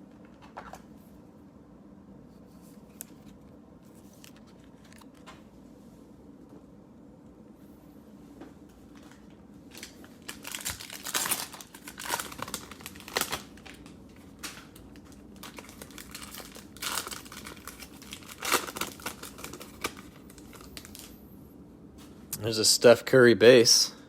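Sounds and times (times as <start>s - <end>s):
cellophane wrapper tearing and crinkling: 9.7s - 21.2s.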